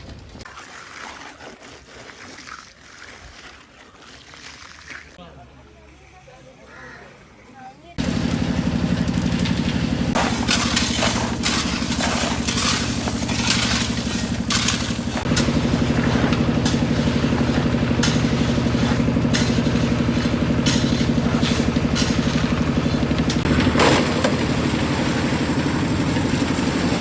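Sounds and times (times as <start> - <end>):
scraping and clattering: 8.0 - 24.5
engine running with rapid pulse: 8.0 - 27.0.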